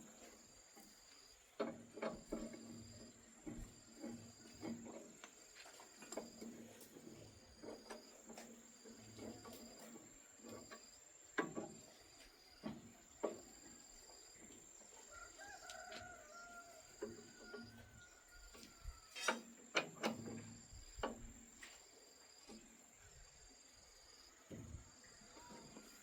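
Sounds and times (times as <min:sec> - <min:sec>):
rooster crowing: 0:15.0 - 0:19.2.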